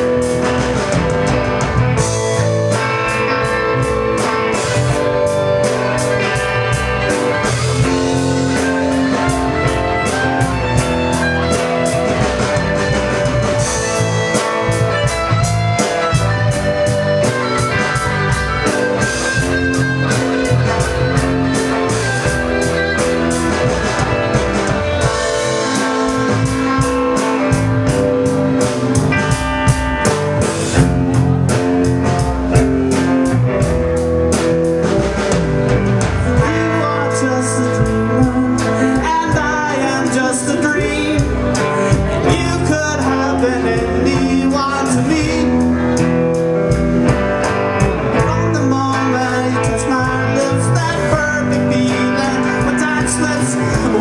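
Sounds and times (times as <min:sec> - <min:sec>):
blues-rock band playing: 0:00.0 - 0:54.0.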